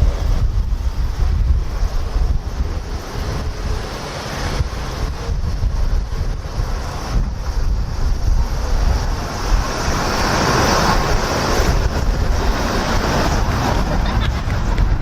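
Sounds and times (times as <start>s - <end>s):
jet airliner passing overhead: 0.0s - 15.0s
wind buffeting microphone: 0.0s - 15.0s.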